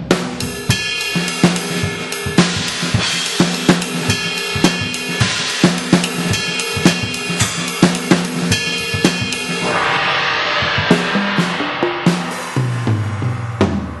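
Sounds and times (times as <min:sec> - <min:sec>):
kick and snare beat: 0:00.0 - 0:09.6
ride and hi-hat wash: 0:00.5 - 0:13.3.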